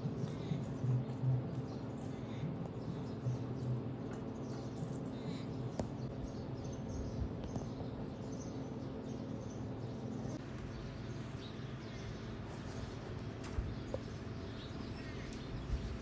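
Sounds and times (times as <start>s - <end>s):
small birds chirping: 0.0s - 16.0s
steady low hum: 0.0s - 16.0s.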